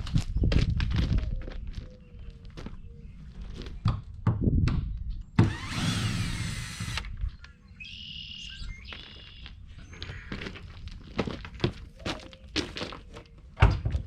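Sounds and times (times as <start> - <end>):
power drill whining: 5.4 - 7.2.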